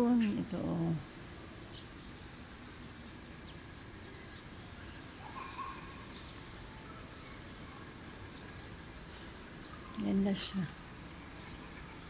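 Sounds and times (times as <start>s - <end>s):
outdoor background hum: 0.0s - 12.0s
faint bird calls: 4.8s - 10.8s.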